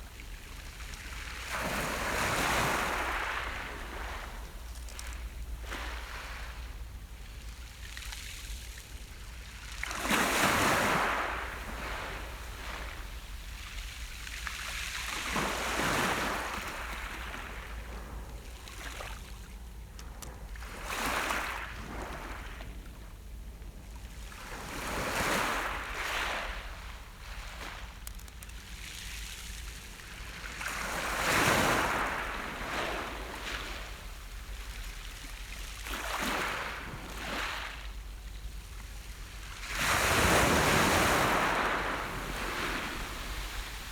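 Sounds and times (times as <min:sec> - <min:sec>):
sea waves breaking on shore: 0:00.0 - 0:19.6, 0:24.1 - 0:43.9.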